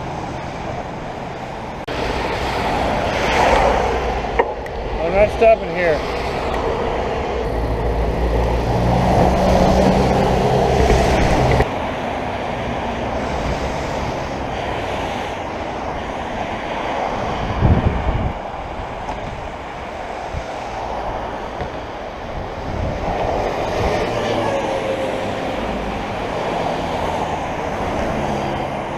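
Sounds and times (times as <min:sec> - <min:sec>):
wind rushing over microphone: 0:00.0 - 0:28.9
engine humming low: 0:06.4 - 0:12.1.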